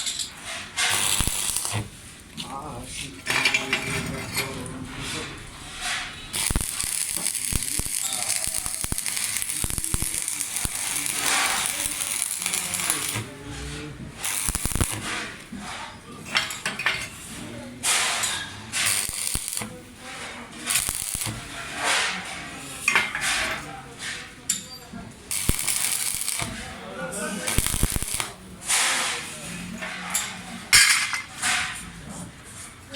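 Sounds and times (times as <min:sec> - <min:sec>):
welding crackling hiss: 0:00.8 - 0:02.0, 0:05.8 - 0:13.3, 0:14.2 - 0:15.4, 0:17.8 - 0:22.1, 0:25.3 - 0:26.8, 0:27.4 - 0:29.2.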